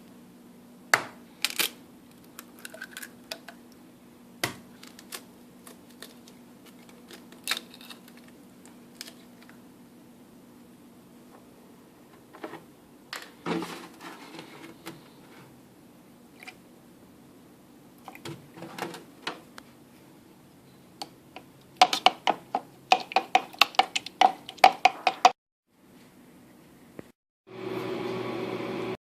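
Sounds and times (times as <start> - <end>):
fork beating eggs in a bowl: 21.8 - 25.4.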